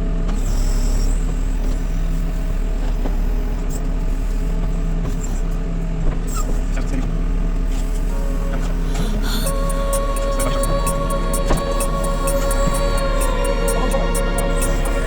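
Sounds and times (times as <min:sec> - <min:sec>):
diesel engine idling: 0:08.1 - 0:15.0.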